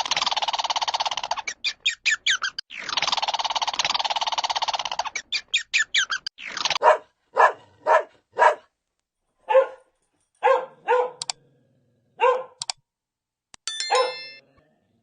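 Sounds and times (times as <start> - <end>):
rapid trilling animal call: 0.0 - 6.8
dog barking: 6.8 - 8.7, 9.4 - 11.3, 12.2 - 12.6, 13.9 - 14.2.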